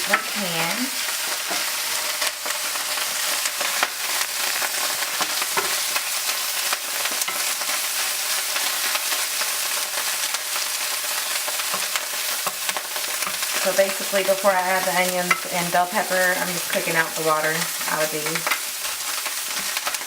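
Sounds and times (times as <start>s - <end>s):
mushrooms sizzling in oil: 0.0s - 20.0s.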